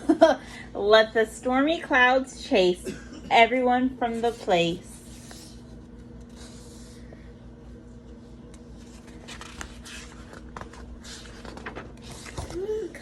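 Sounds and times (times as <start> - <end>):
steady low hum: 0.0 - 13.0
book pages rustling: 8.0 - 13.0.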